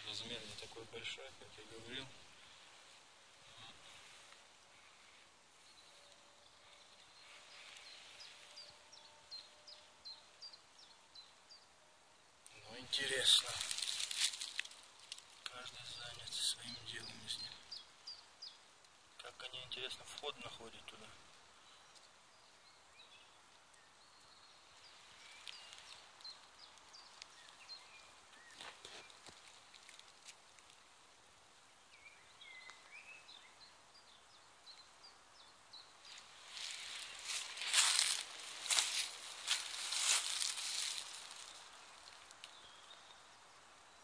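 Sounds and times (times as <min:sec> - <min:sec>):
songbird singing faintly: 0:00.0 - 0:44.0
woodland background hiss: 0:00.0 - 0:44.0
distant bird chirps: 0:12.5 - 0:18.6.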